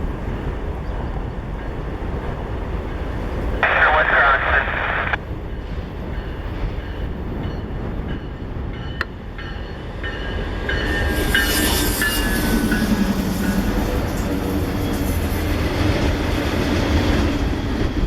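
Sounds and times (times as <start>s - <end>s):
train wheels rumbling on rails: 5.2s - 18.0s.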